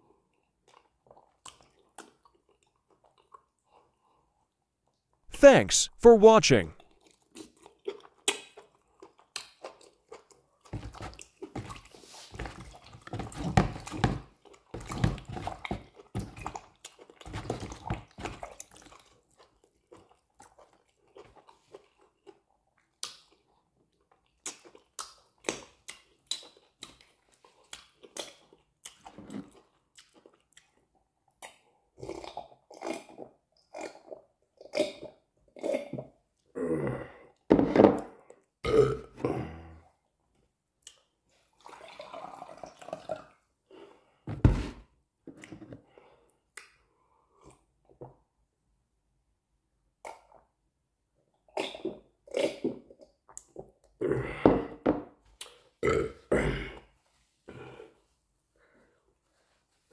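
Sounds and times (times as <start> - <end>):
person chewing and lip smacking: 0.3 - 4.1, 7.0 - 12.0, 15.5 - 36.5, 40.8 - 41.2, 46.5 - 47.7, 50.0 - 50.6, 51.5 - 54.0, 55.3 - 55.7.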